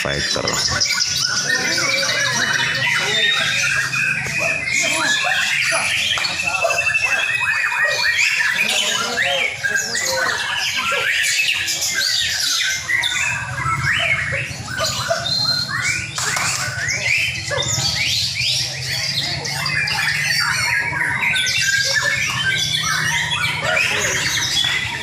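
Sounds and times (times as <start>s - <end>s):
birds singing: 0.0s - 25.0s.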